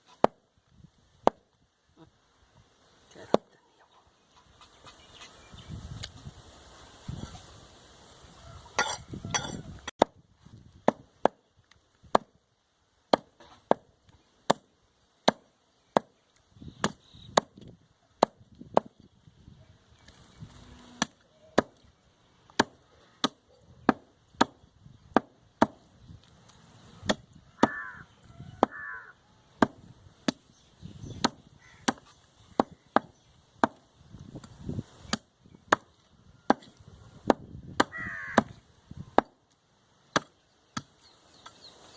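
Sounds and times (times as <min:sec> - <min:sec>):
cleaver chopping meat on wood: 0:16.8 - 0:19.0, 0:22.5 - 0:25.8, 0:27.0 - 0:27.8, 0:29.6 - 0:30.4, 0:31.2 - 0:33.8, 0:36.5 - 0:38.6.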